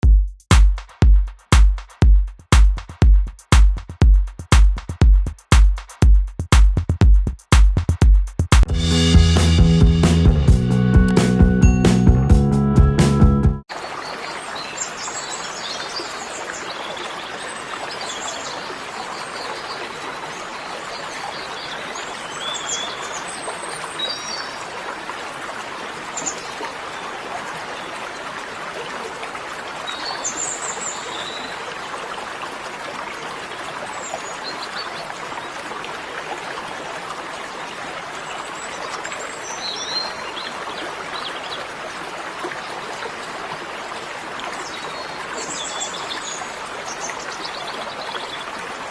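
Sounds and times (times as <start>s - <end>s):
running water stream: 13.0s - 48.9s.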